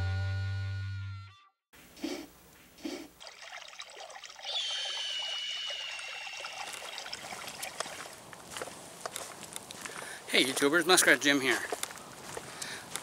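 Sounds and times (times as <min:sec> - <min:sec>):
water trickling: 0:03.2 - 0:08.7
high whistled tone: 0:04.4 - 0:06.7.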